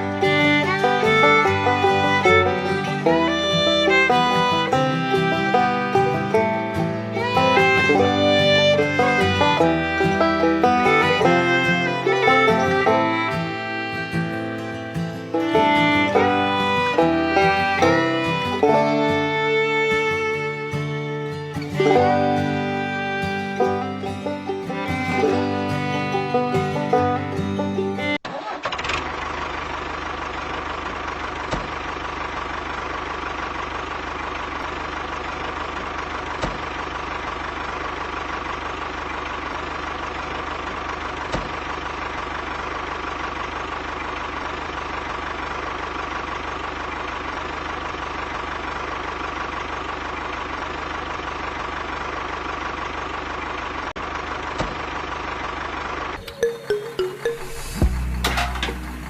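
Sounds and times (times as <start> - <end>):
tractor engine idling: 0.0 - 59.0.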